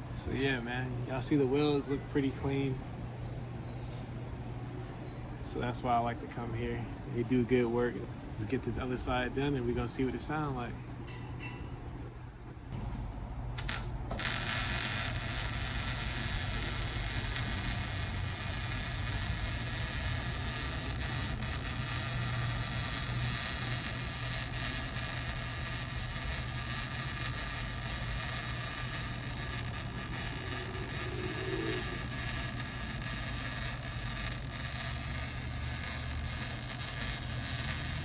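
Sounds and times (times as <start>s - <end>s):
low hum: 8.0s - 38.0s
steady hiss: 13.6s - 38.0s.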